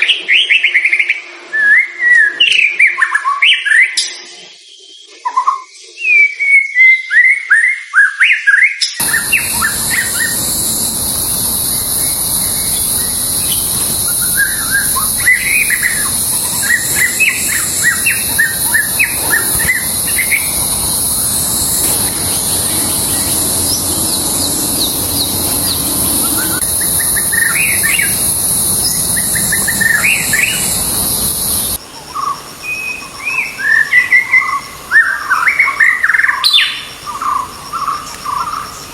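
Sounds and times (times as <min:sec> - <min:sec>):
bird singing whistled phrases: 0:09.0 - 0:31.8
steady high hiss: 0:09.0 - 0:38.9.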